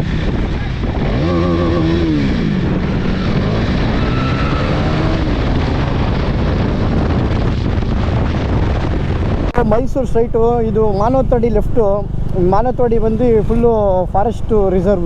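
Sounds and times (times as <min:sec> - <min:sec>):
motorcycle engine running: 0:00.0 - 0:15.0
wind rush on microphone: 0:00.0 - 0:15.0.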